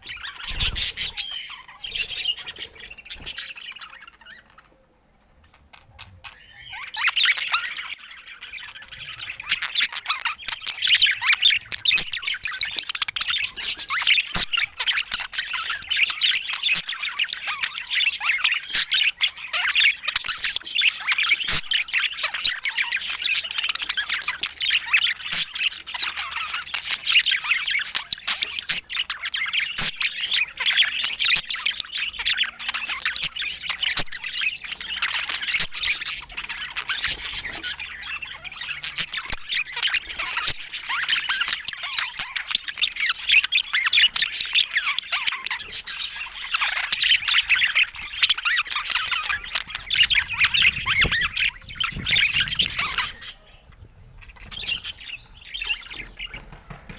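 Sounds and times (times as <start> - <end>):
budgerigars chattering: 0.0 - 4.8, 5.4 - 56.9.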